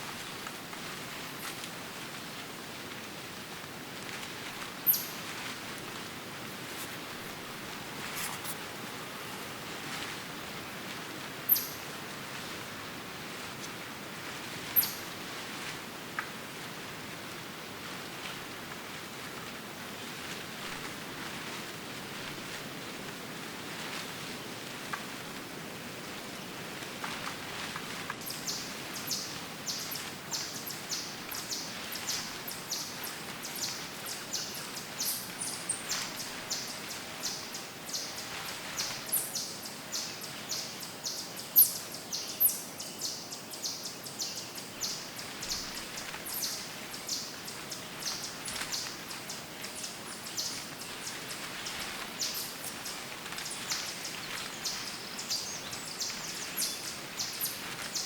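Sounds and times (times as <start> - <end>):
woodland ambience hiss: 0.0 - 58.0
songbirds chirping: 4.8 - 5.4, 28.2 - 58.0.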